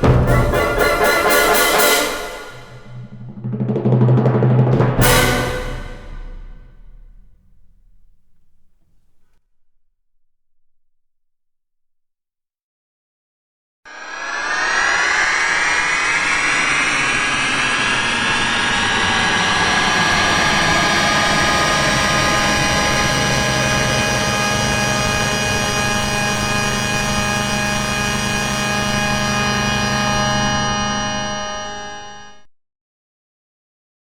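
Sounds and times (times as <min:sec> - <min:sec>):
dense mass of gliding tones: 0:13.9 - 0:30.8.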